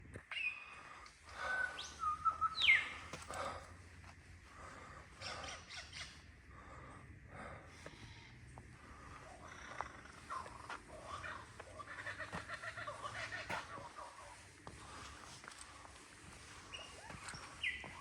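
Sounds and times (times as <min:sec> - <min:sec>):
lyrebird singing: 0:00.3 - 0:03.6, 0:05.2 - 0:06.4, 0:09.0 - 0:15.1, 0:15.7 - 0:18.0.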